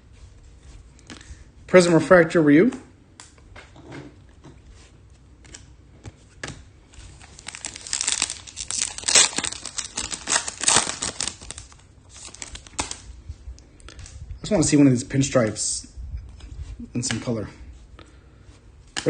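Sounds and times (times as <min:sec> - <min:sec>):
foil wrapper crinkling and tearing: 0:07.0 - 0:13.1.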